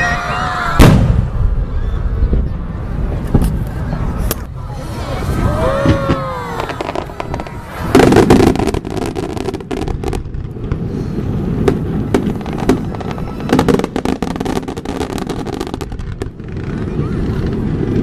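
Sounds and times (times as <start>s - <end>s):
fireworks bursting and crackling: 0.0s - 18.0s
loud firework booms: 0.7s - 2.5s, 5.1s - 18.0s.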